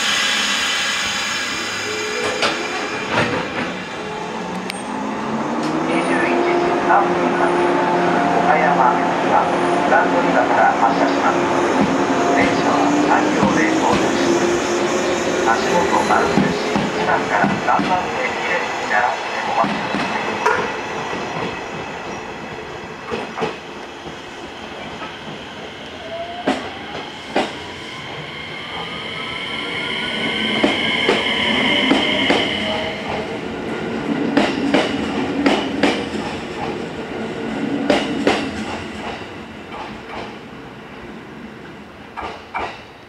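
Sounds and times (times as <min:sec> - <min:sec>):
electric train whine rising: 0:00.0 - 0:06.0, 0:23.7 - 0:34.1.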